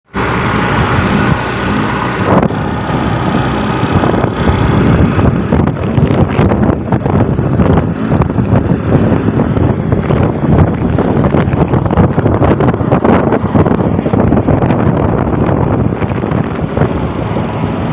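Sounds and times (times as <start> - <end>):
diesel engine running: 0.0 - 17.9
wind buffeting microphone: 0.1 - 17.9.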